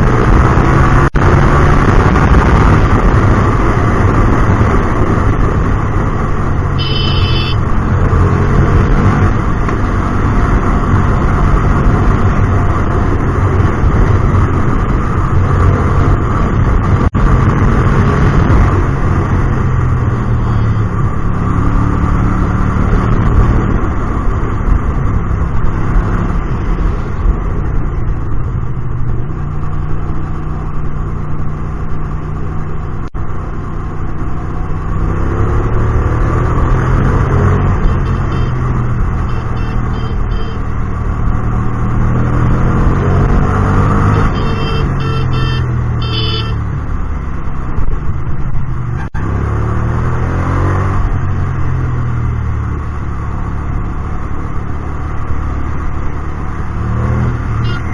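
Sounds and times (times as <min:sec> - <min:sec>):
motorcycle engine revving: 0:00.0 - 0:57.9
short high beeping: 0:06.8 - 0:07.6.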